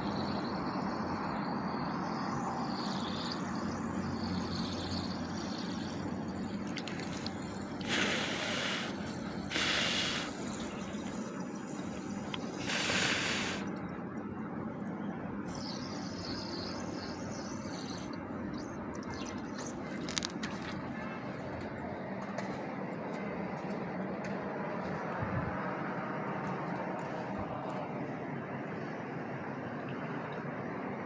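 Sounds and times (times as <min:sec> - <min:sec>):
short hissing bursts: 0:07.5 - 0:13.7.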